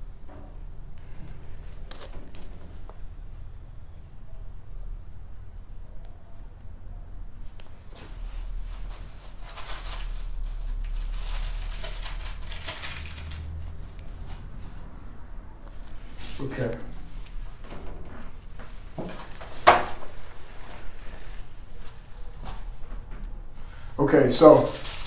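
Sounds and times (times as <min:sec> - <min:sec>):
faint high-pitched whine: 0:00.0 - 0:25.0
low hum: 0:00.0 - 0:25.0
papers rustling: 0:08.7 - 0:14.9, 0:24.3 - 0:25.0.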